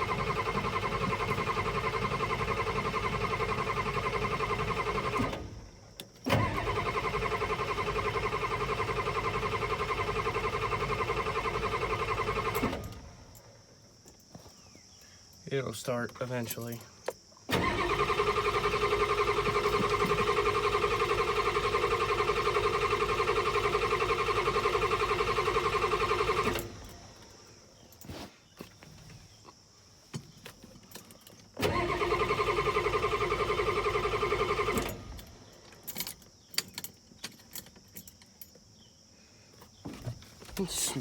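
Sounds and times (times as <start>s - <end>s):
diesel engine cranking: 0.0s - 13.4s, 17.5s - 27.4s, 31.6s - 36.5s.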